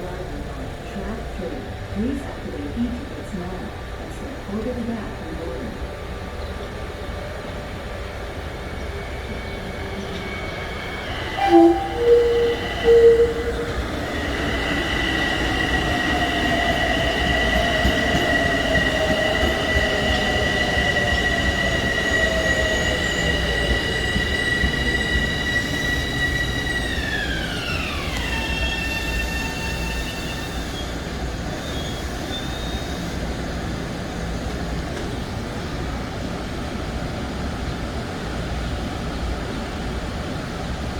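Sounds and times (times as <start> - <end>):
train horn blasts: 11.3 - 14.2.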